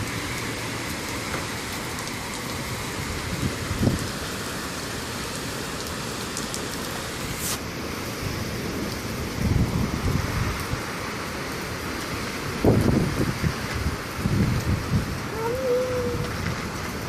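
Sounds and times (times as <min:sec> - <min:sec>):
rain falling: 0:00.0 - 0:17.0
sharp hiss: 0:07.2 - 0:07.7.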